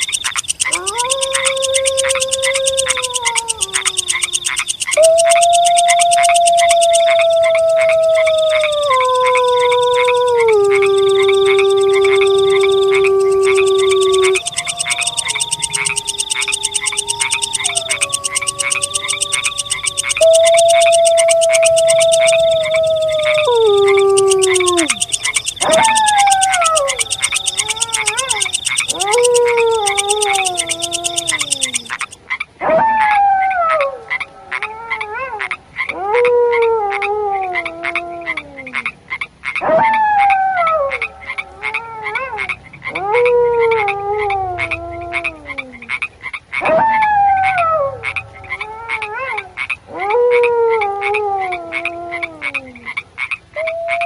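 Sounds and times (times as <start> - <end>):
high insect-like trill: 0.0 - 32.2
frog chorus croaking: 0.0 - 32.5, 36.6 - 54.0
canine howl: 0.0 - 38.7, 39.6 - 45.9, 46.6 - 52.8, 53.6 - 54.0.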